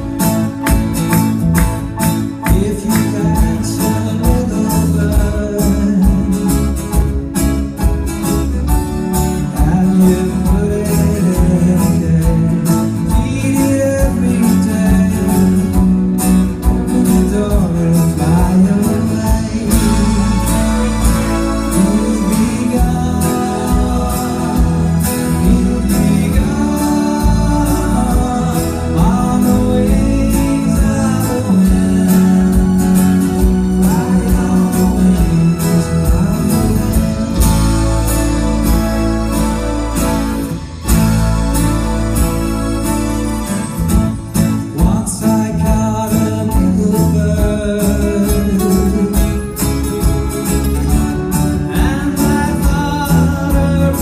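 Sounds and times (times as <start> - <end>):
guitar: 0.0 - 54.0
live band playing: 0.0 - 54.0
person singing: 8.6 - 40.0, 51.4 - 54.0.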